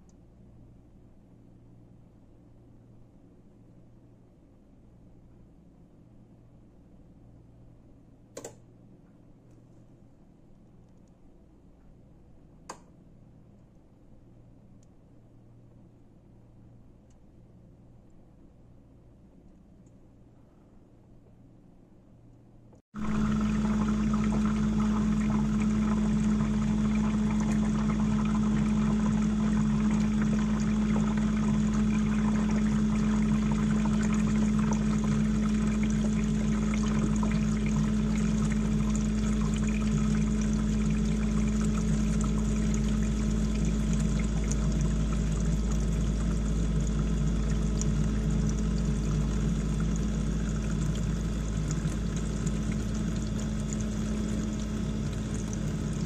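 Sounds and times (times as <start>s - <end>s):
dishwasher motor hum: 23.0s - 56.0s
water rushing in dishwasher: 23.0s - 56.0s.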